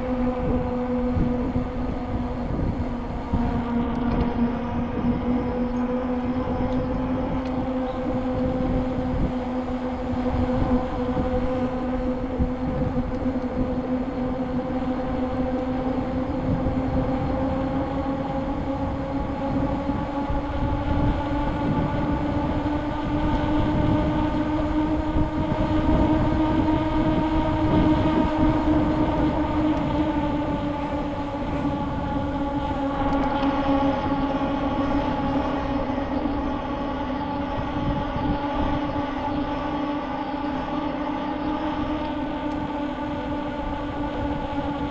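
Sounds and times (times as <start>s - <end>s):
bicycle rolling hum: 0.0s - 44.9s
low rumbling noise: 0.0s - 44.9s.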